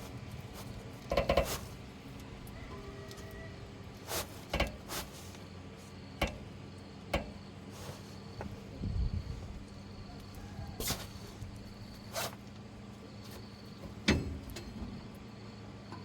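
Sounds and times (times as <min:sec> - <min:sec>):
steady low hum: 0:00.0 - 0:16.0
sharp knocks and clicks: 0:01.0 - 0:01.7, 0:06.2 - 0:06.5.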